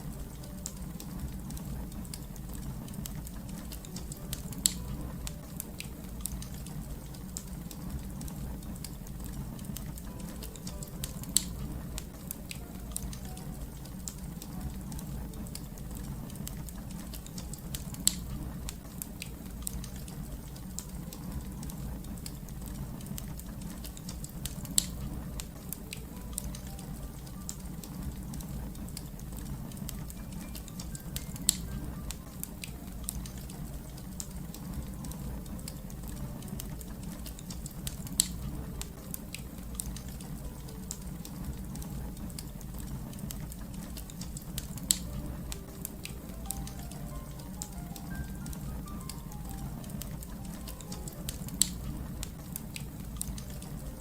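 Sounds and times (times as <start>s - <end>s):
wood fire crackling: 0.0s - 54.0s
sharp fire pops: 23.1s - 25.6s.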